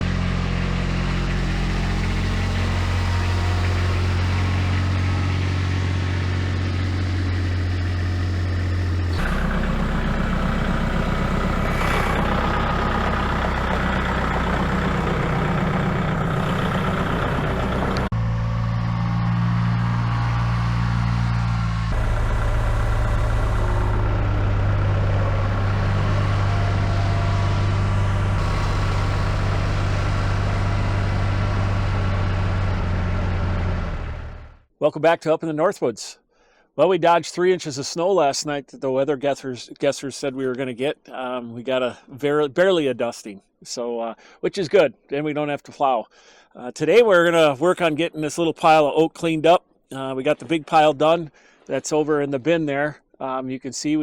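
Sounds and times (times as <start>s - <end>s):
engine idling: 0.0s - 34.6s.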